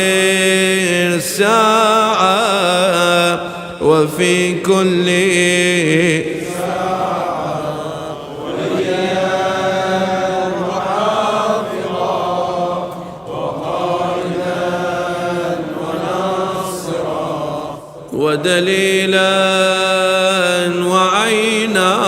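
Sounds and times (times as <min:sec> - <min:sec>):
man chanting melodically: 0:00.0 - 0:08.2, 0:15.0 - 0:22.0
sustained vocal drone: 0:00.0 - 0:22.0.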